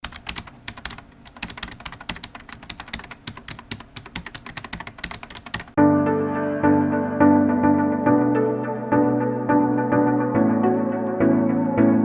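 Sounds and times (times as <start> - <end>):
rapid irregular clicking: 0.0 - 5.8
music: 5.8 - 12.0.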